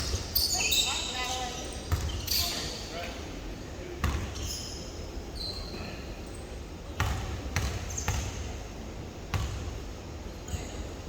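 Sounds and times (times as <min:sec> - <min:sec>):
sneaker squeaks: 0:00.0 - 0:02.9, 0:04.0 - 0:06.4.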